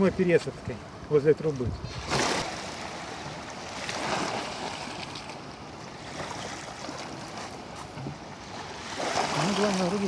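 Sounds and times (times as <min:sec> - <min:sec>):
wind on microphone: 0:01.6 - 0:02.5
waves washing over stones: 0:02.0 - 0:10.0.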